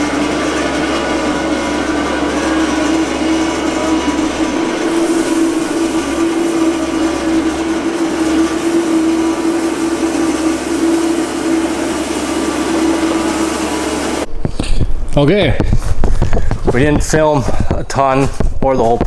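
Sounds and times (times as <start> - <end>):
small engine droning with clatter: 0.0 - 14.9.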